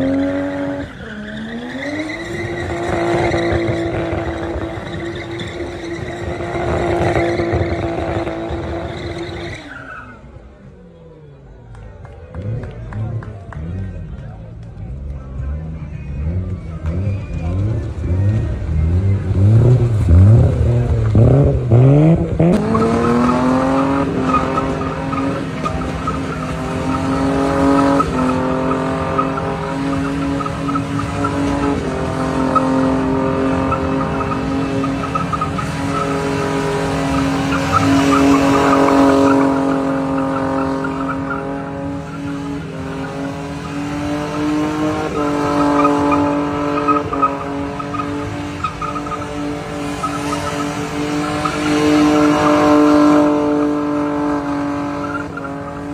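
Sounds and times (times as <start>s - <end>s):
tyres squealing: 0.0s - 10.2s, 22.6s - 52.9s
car engine revving: 0.0s - 55.9s.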